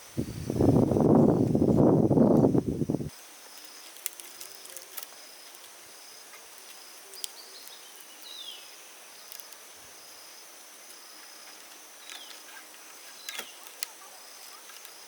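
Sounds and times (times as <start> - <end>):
insect buzzing: 0.0 - 15.0
bird chirp: 7.0 - 9.3, 11.1 - 15.0.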